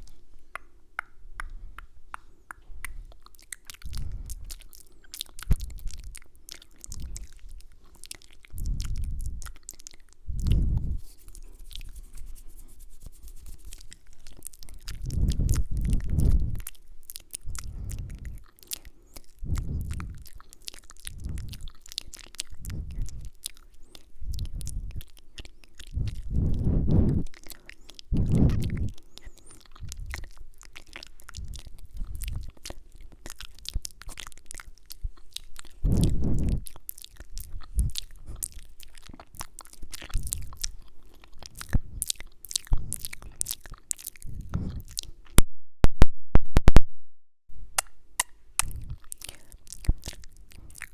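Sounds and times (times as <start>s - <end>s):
wet mouth sounds and lip smacks: 0.0s - 45.4s, 47.7s - 50.9s
soft puffs against microphone: 10.5s - 14.0s, 25.9s - 27.3s, 28.1s - 30.1s, 35.8s - 36.6s.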